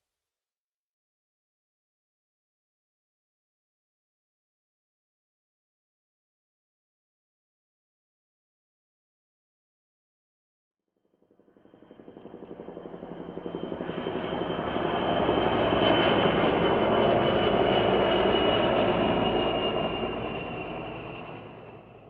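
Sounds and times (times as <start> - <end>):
helicopter rotor chop: 11.5 - 22.0.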